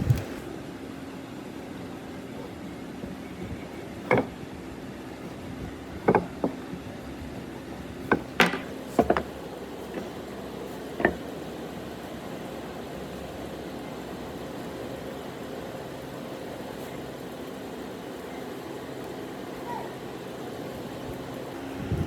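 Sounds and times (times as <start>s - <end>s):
steady hum: 0.0s - 22.0s
knocks and clicks of woodwork: 4.0s - 4.4s, 6.0s - 6.6s, 8.0s - 10.2s, 11.0s - 11.3s.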